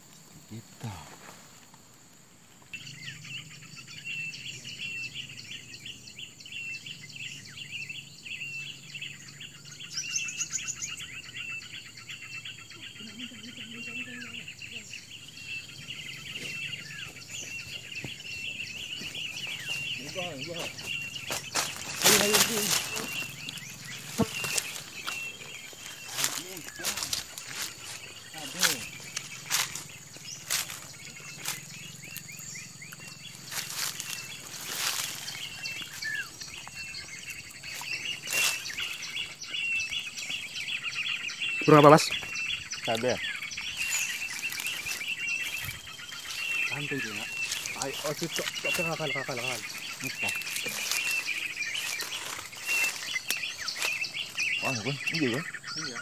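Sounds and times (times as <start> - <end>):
small birds chirping: 0.0 - 56.0
high insect buzz: 0.2 - 41.6.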